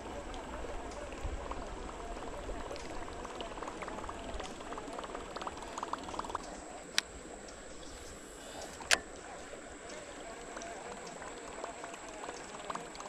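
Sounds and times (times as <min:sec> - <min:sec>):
lure churning water: 0:00.0 - 0:13.0
small clicks: 0:02.3 - 0:13.0.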